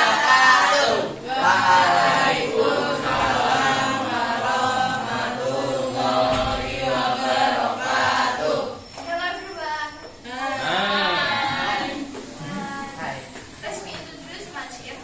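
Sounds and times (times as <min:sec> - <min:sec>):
choir chanting: 0:00.0 - 0:08.8, 0:10.6 - 0:12.1.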